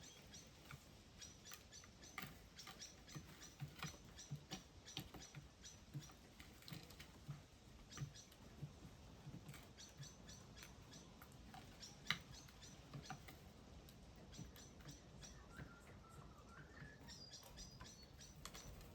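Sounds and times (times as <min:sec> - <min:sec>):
small birds chipping: 0:00.0 - 0:18.9.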